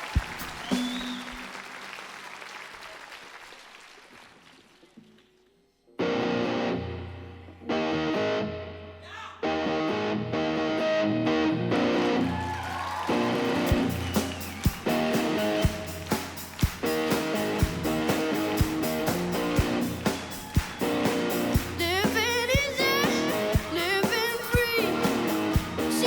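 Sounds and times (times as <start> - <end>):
steady drum beat: 0.0 - 1.6, 13.2 - 26.0
distorted electric guitar chords: 6.0 - 12.3, 14.8 - 26.0.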